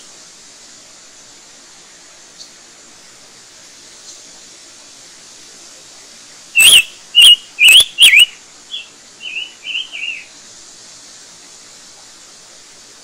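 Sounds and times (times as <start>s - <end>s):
bird chirping: 6.6s - 10.3s.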